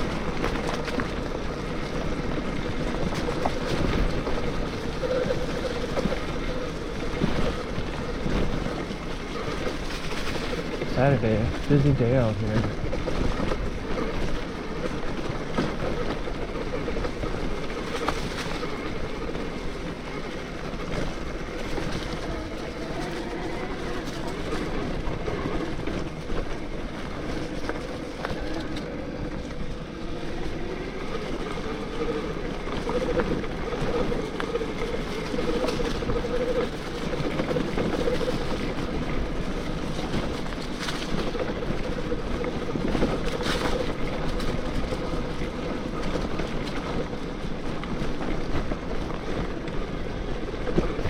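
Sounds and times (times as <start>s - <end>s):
electric bike motor whining: 0.0s - 51.0s
wind noise: 0.0s - 51.0s.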